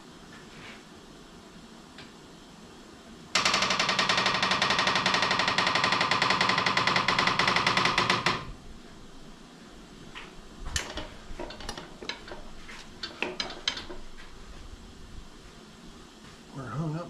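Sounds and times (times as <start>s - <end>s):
fast mechanical rattle: 3.4s - 8.6s, 10.8s - 14.0s
metallic clinks and knocks: 10.8s - 14.1s.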